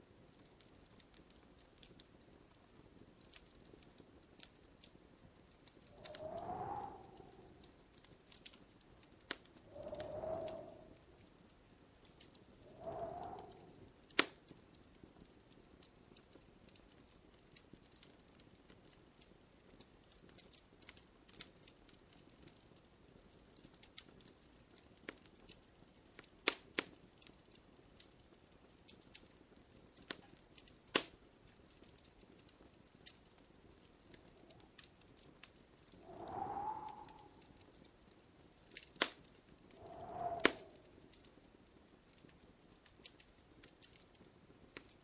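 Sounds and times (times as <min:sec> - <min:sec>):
wood fire crackling: 0:00.0 - 0:45.0
faint hiss: 0:05.4 - 0:14.5, 0:33.5 - 0:41.6.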